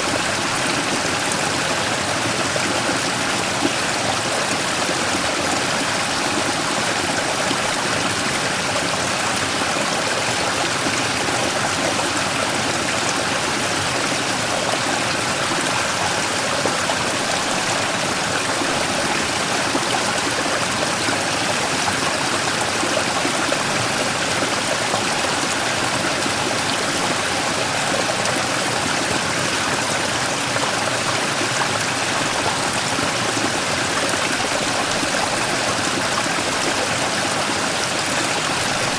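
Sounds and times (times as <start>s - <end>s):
stream rushing and splashing: 0.0s - 38.9s.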